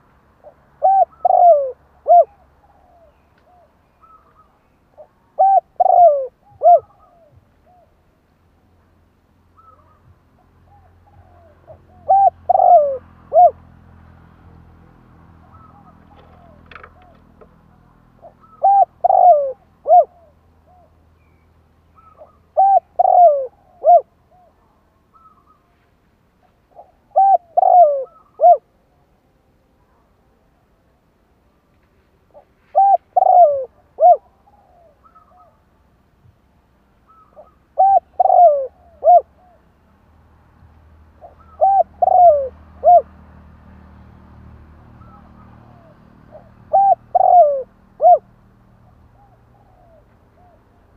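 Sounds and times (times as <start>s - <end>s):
dove cooing: 0.0s - 8.0s, 9.6s - 13.7s, 15.4s - 21.0s, 22.0s - 25.6s, 26.7s - 28.7s, 32.3s - 35.6s, 37.1s - 39.6s, 41.2s - 43.2s, 45.0s - 48.3s, 48.9s - 50.8s.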